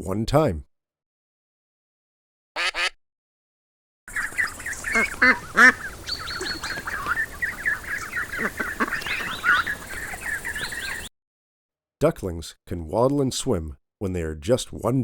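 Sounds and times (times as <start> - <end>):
recorded ducks quacking: 2.6 - 3.0, 4.1 - 11.1.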